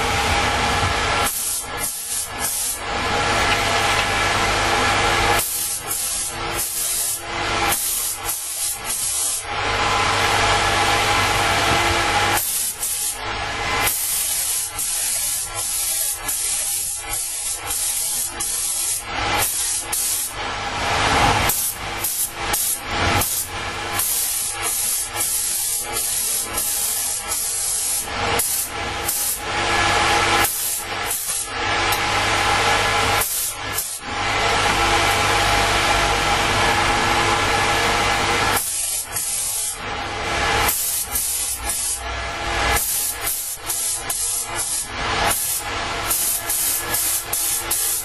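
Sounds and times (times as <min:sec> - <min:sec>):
paint spray gun hissing: 0:00.9 - 0:02.8, 0:05.2 - 0:09.5, 0:11.5 - 0:13.2, 0:13.8 - 0:20.4, 0:21.5 - 0:29.5, 0:30.2 - 0:32.1, 0:32.8 - 0:34.0, 0:38.5 - 0:39.8, 0:40.5 - 0:42.1, 0:42.7 - 0:48.0.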